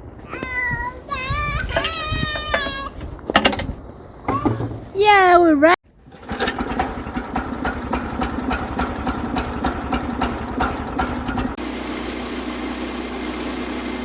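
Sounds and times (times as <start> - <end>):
small gasoline engine running: 6.0 - 14.0.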